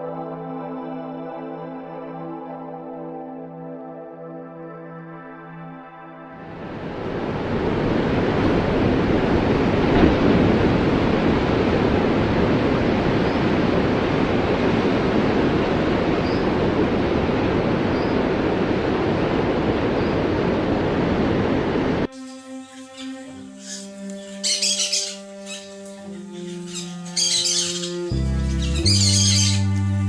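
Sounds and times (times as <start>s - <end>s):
steady rushing noise: 6.4s - 22.1s.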